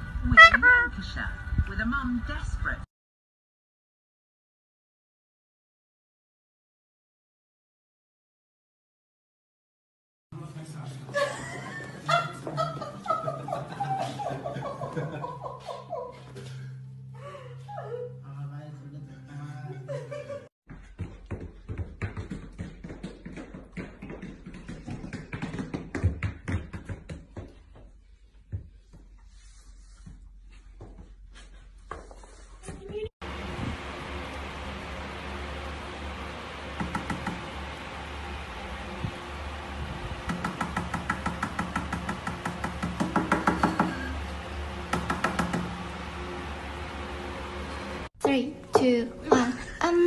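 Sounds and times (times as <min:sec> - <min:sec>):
rapid taps and knocks: 0:21.0 - 0:27.6, 0:40.3 - 0:44.0
steady low hum: 0:33.2 - 0:50.0.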